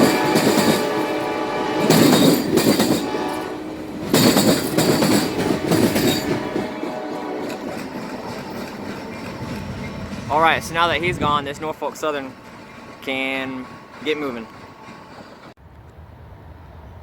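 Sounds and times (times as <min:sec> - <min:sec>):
train horn blasts: 0:00.0 - 0:08.6
passing train running: 0:00.0 - 0:17.0.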